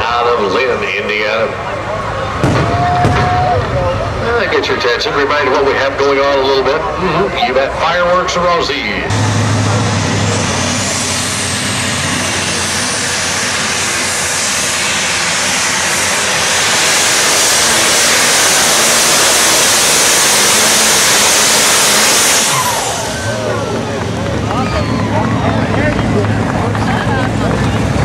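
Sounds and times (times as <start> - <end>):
turbocharger whine: 0.0 - 28.0
tractor engine running flat out: 7.7 - 28.0.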